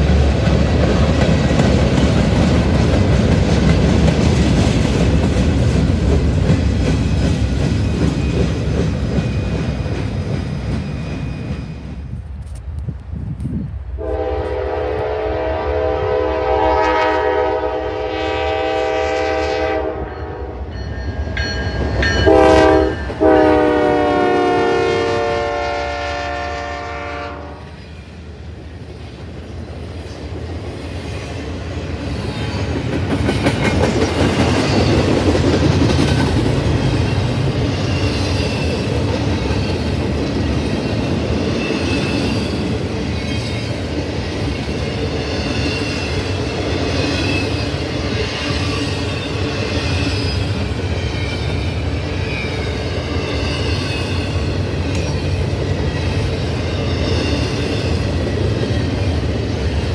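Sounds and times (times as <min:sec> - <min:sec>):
wheels clacking on rail: 0:00.0 - 0:12.9, 0:29.0 - 0:59.9
train rumbling past: 0:00.0 - 0:59.9
locomotive horn blasts: 0:14.0 - 0:20.7, 0:22.2 - 0:27.7.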